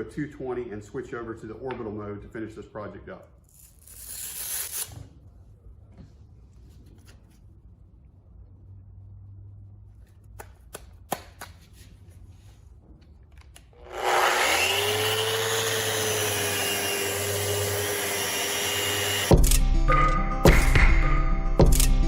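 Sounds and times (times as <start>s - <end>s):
dust extractor running: 13.8s - 19.4s
orbital sander whining: 13.8s - 19.4s.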